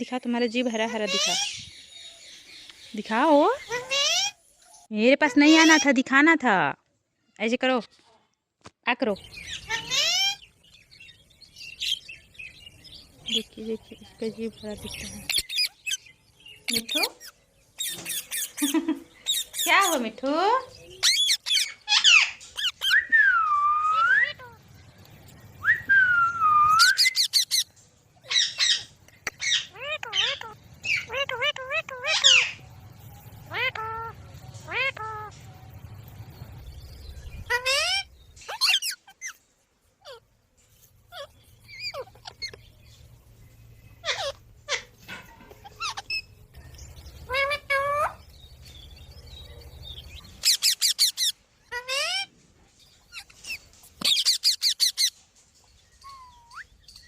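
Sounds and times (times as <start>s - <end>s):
parrot squawking and chirping: 0.8s - 1.7s, 3.5s - 4.4s, 5.2s - 6.0s, 9.3s - 10.6s, 15.0s - 20.1s, 20.9s - 23.1s, 26.8s - 32.7s, 33.4s - 35.4s, 37.2s - 40.3s, 41.0s - 42.7s, 43.9s - 49.0s, 49.6s - 52.3s, 52.9s - 55.2s, 55.9s - 57.0s
parrot chirping and whistling: 21.0s - 24.6s, 25.6s - 27.7s, 37.4s - 39.4s, 50.4s - 52.3s, 53.1s - 55.1s, 56.0s - 57.0s
faint low hum: 28.9s - 38.6s.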